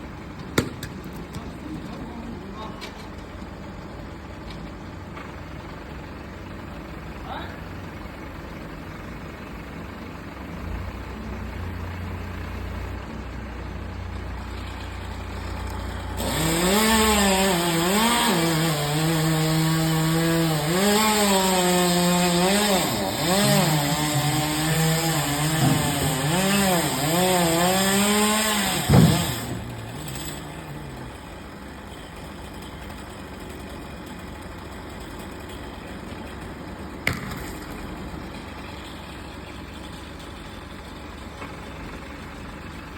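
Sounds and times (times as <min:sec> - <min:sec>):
chainsaw cutting wood: 0:14.5 - 0:42.1
chainsaw knock: 0:22.8 - 0:29.6.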